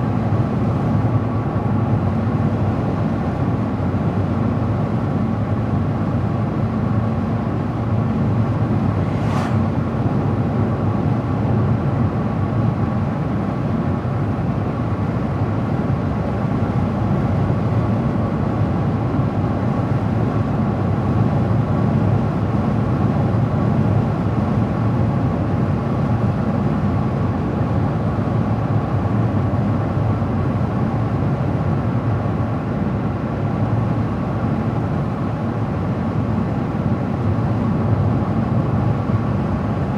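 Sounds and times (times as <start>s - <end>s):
car tyres and engine rumble: 0.3s - 11.9s.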